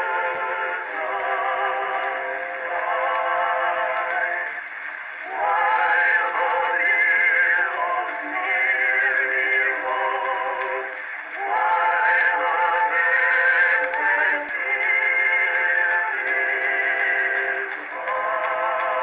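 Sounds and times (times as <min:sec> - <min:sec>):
man singing on phonograph: 0:00.0 - 0:19.0
singer breaths: 0:11.0 - 0:11.4.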